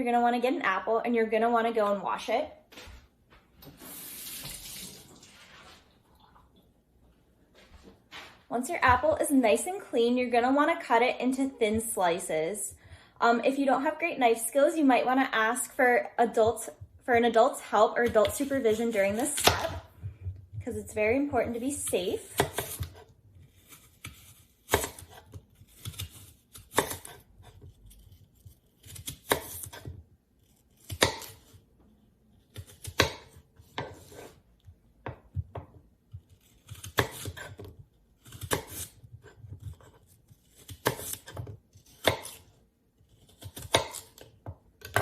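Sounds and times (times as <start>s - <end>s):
knife slicing apple on board: 18.1s - 19.9s, 21.5s - 31.6s, 32.4s - 45.0s.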